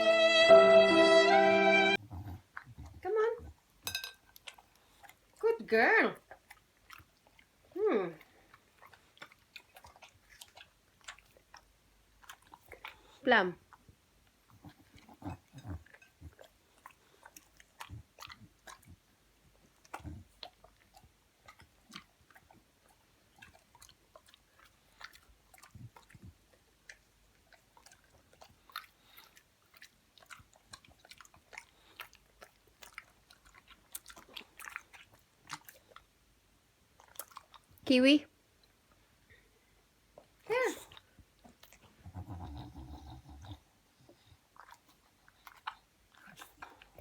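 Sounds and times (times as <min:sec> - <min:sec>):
dog chewing: 0:08.5 - 0:36.1, 0:37.0 - 0:37.8.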